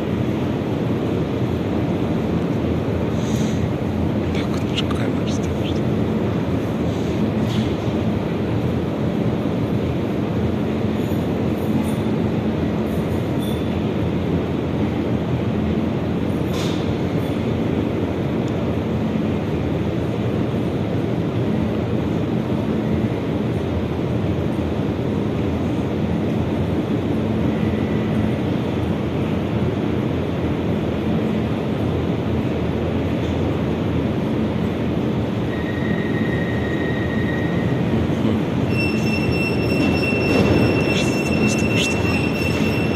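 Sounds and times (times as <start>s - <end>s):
metro train rolling rumble: 0.0s - 42.9s
faint high wheel squeal: 35.5s - 37.9s, 38.6s - 42.9s.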